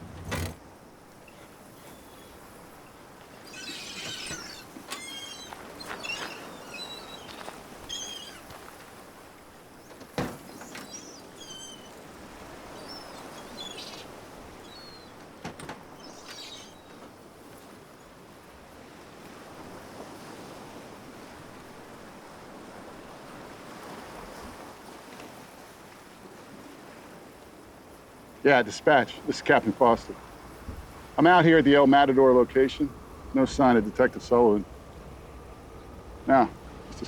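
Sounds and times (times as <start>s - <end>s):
birds chirping: 0.0s - 18.1s, 28.6s - 37.0s
outdoor background hiss: 0.0s - 37.0s.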